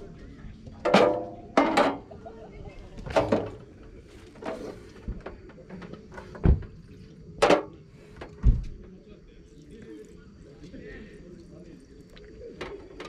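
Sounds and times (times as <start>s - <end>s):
objects knocking and thudding: 0.8s - 2.1s, 3.0s - 3.8s, 4.4s - 8.9s.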